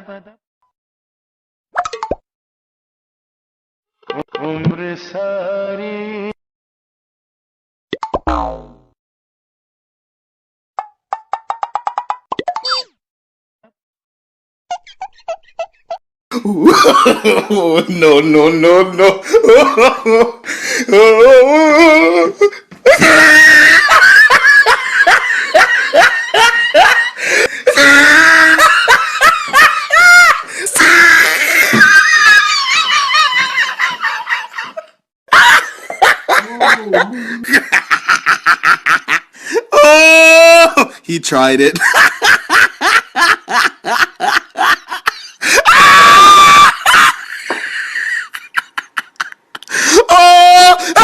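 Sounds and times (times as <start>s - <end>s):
person laughing hard: 14.7s - 40.9s, 41.8s - 51.0s
person screaming: 20.9s - 24.0s, 27.6s - 28.9s, 29.9s - 32.8s, 39.6s - 40.9s, 45.5s - 47.2s, 49.7s - 51.0s.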